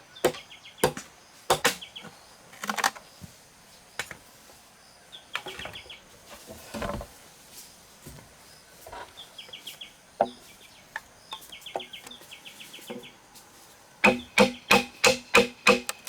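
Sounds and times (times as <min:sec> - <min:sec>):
hand tool striking bamboo: 0:00.3 - 0:01.8, 0:14.0 - 0:16.0.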